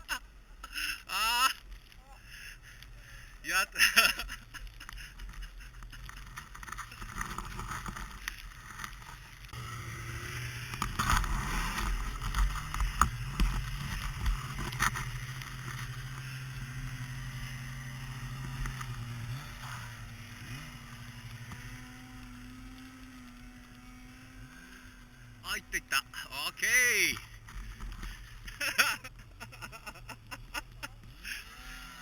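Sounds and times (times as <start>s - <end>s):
motor running: 6.6s - 26.5s, 27.1s - 32.0s.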